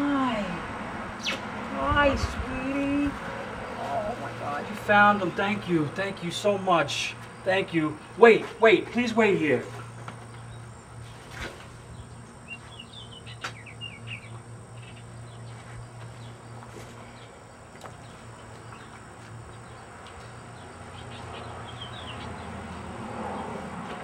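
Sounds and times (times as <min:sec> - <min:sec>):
steady low hum: 0:00.0 - 0:24.0
bird chirping: 0:11.9 - 0:17.3, 0:20.5 - 0:22.7.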